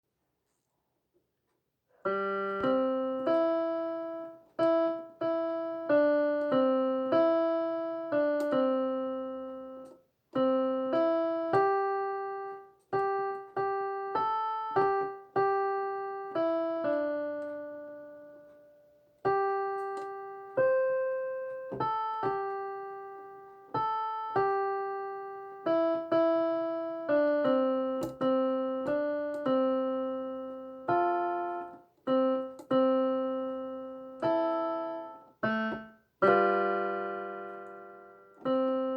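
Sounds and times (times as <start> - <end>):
slow piano melody: 2.0 - 38.9.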